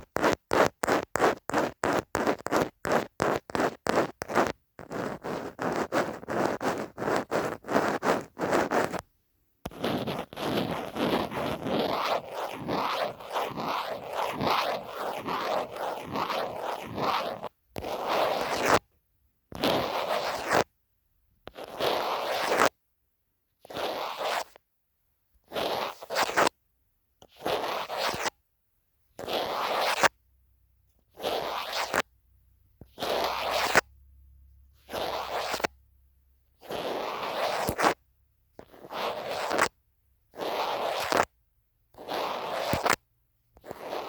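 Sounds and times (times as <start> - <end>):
scratching on a phone case: 0.0 - 9.1, 9.7 - 18.9, 19.5 - 20.7, 21.4 - 22.8, 23.6 - 24.6, 25.4 - 26.6, 27.2 - 28.4, 29.2 - 30.2, 31.0 - 32.1, 32.8 - 33.9, 34.8 - 35.8, 36.6 - 38.0, 38.6 - 41.4, 42.0 - 44.0.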